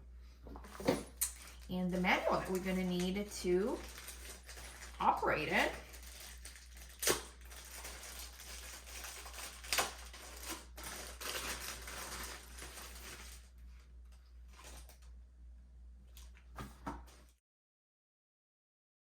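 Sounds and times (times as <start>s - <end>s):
plastic packaging crinkling: 0.8s - 15.1s.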